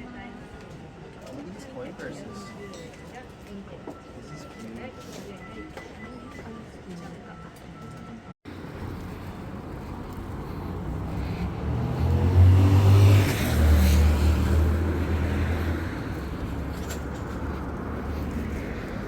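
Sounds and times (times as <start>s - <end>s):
road noise: 8.4s - 19.0s
motor vehicle engine hum: 8.5s - 19.0s.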